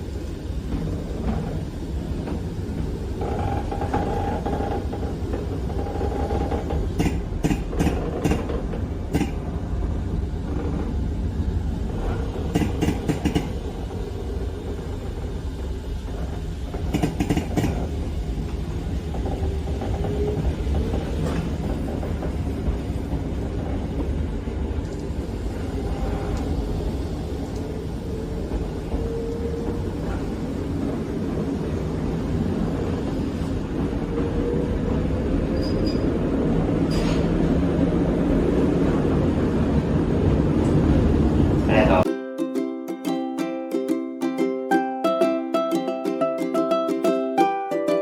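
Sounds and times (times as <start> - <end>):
train rumbling on track: 0.0 - 42.1
sharp track clicks: 6.7 - 9.5, 12.4 - 13.7, 16.8 - 17.9.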